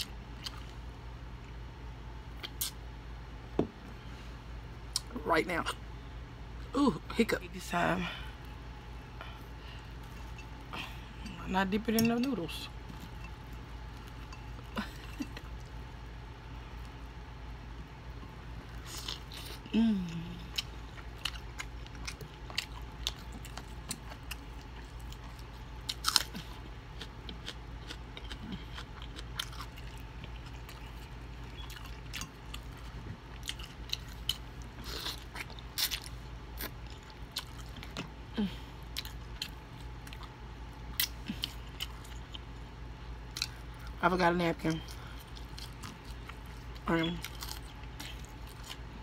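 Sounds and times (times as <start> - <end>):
crunchy chewing: 18.2 - 44.0, 44.7 - 49.0
person vocal sound: 19.7 - 20.5.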